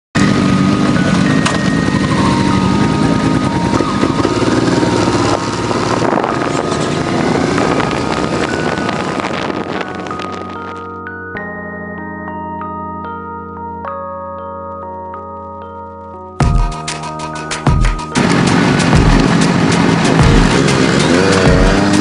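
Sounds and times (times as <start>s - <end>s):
motorcycle running: 0.2s - 11.0s, 16.4s - 22.0s
wind buffeting microphone: 5.1s - 10.8s.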